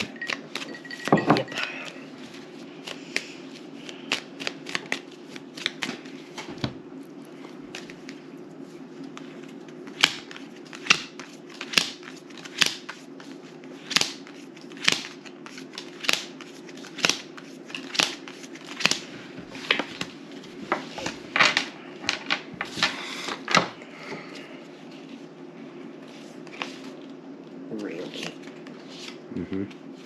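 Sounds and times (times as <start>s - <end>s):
steady low hum: 0.0s - 30.0s
playing cards slapping on a table: 2.8s - 6.8s, 9.9s - 13.0s, 13.8s - 20.1s.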